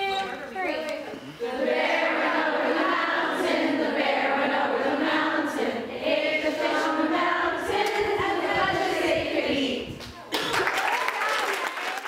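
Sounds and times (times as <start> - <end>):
crowd singing together: 1.4 - 10.0.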